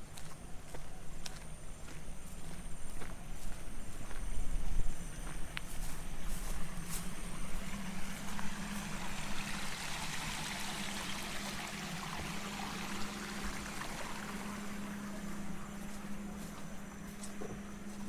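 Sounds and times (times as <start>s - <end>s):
steady low hum: 0.0s - 18.0s
water rushing in channel: 7.6s - 15.8s.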